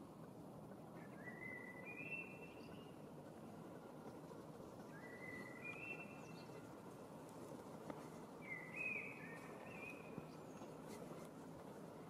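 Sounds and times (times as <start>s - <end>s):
faint background noise: 0.0s - 12.0s
songbird whistling: 8.5s - 10.1s.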